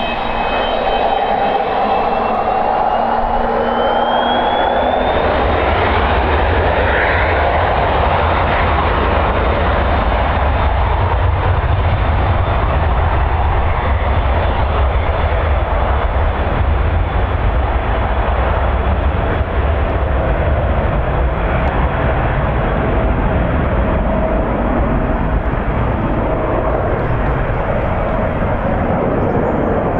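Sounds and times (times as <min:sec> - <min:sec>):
thin engine whine: 0:00.0 - 0:07.0
jet engines running: 0:00.0 - 0:29.9
wind buffeting on microphone: 0:00.0 - 0:29.9.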